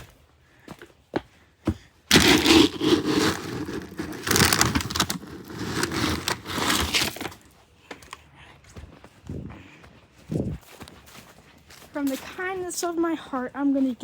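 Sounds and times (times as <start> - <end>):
scoop digging into dry kibble: 2.1 - 7.4.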